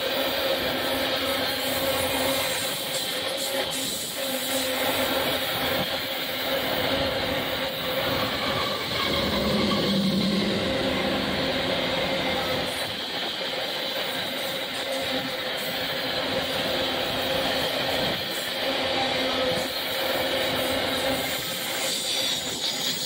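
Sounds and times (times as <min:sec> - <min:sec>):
train wheels rumbling and clattering: 0:00.0 - 0:23.0
steady whine: 0:06.6 - 0:13.0.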